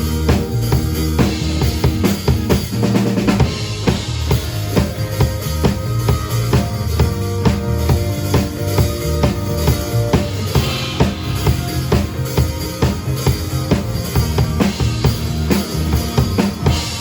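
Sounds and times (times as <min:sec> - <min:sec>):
live band music: 0:00.0 - 0:17.0
bass drum and snare hits: 0:10.2 - 0:17.0.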